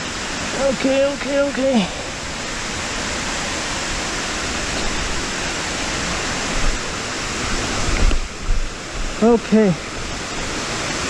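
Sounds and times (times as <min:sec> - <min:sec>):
waterfall rushing: 0:00.0 - 0:11.0
low thuds: 0:07.8 - 0:09.2.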